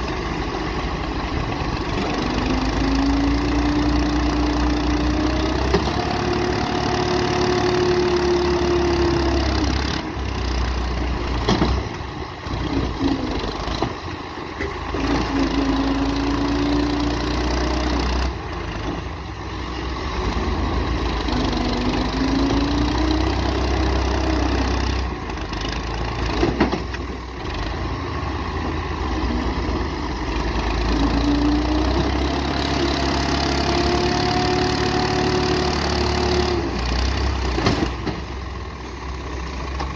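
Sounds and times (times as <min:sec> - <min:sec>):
tractor engine straining: 0:00.0 - 0:39.9.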